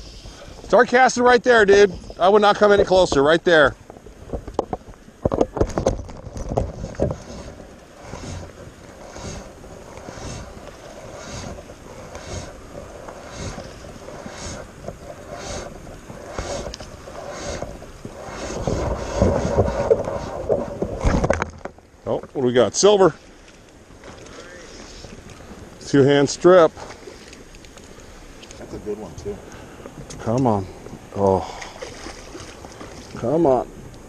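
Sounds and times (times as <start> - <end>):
wind buffeting microphone: 0.0 - 21.5
fly line swishing: 7.1 - 20.8.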